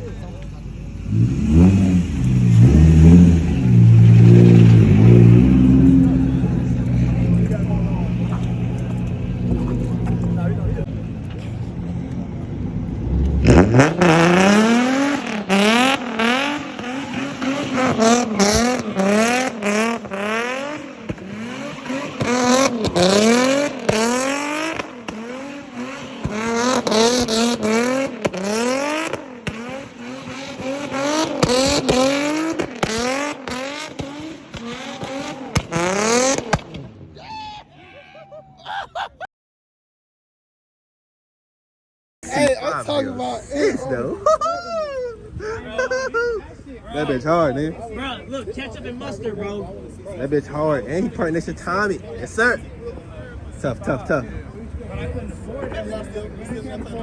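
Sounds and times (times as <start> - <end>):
car engine revving hard: 0.8 - 8.6, 12.8 - 37.0.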